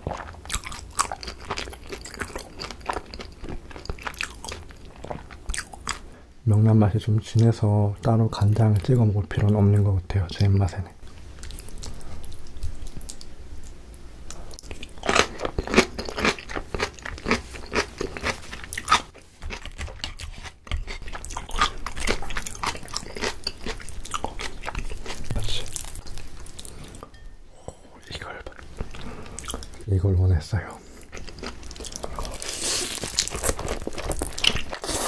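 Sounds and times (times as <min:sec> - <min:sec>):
crunchy chewing: 0:00.0 - 0:06.1, 0:11.4 - 0:27.0, 0:30.9 - 0:35.0.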